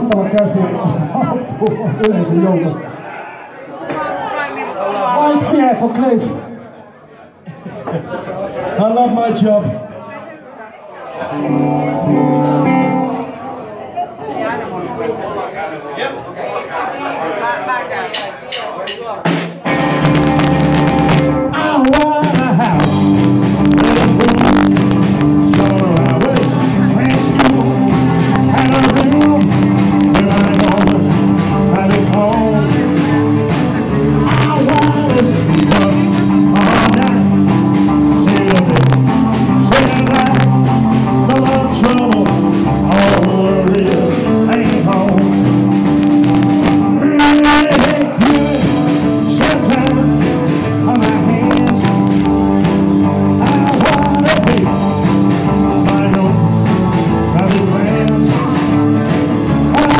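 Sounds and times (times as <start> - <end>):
rock and roll band playing: 0.0 - 2.8, 11.2 - 13.4, 18.1 - 59.9.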